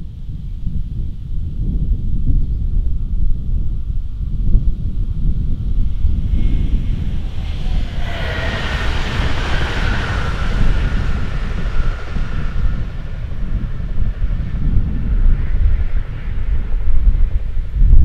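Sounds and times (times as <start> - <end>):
wind buffeting microphone: 0.0 - 18.0
train drive whine: 4.8 - 17.8
wheels rushing on rails: 5.0 - 18.0.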